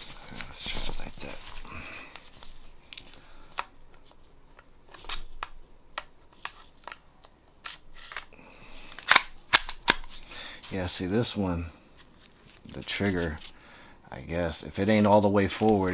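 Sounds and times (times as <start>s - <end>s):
pistol slide clicks and scrapes: 8.9s - 10.1s.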